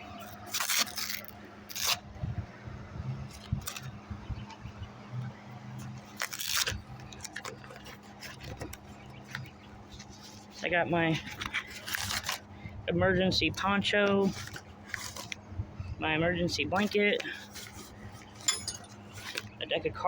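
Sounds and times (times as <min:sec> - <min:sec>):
steady low hum: 0:00.0 - 0:20.0
gear rustling and scraping: 0:00.1 - 0:02.0, 0:05.7 - 0:12.6, 0:13.8 - 0:15.5, 0:16.7 - 0:19.6.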